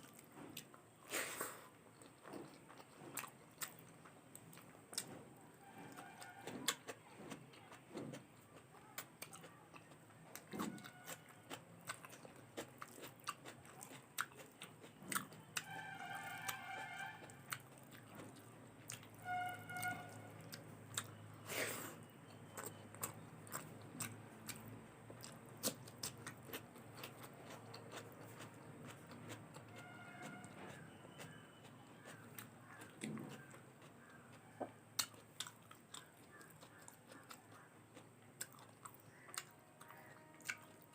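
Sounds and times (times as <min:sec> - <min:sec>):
person chewing food: 0:00.0 - 0:40.9.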